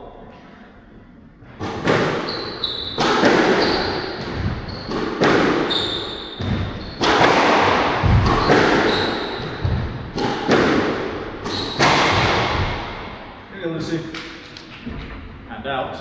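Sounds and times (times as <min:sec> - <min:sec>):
court shoes squeaking: 0:01.4 - 0:13.5
squash ball hitting racquets and walls: 0:01.4 - 0:13.5.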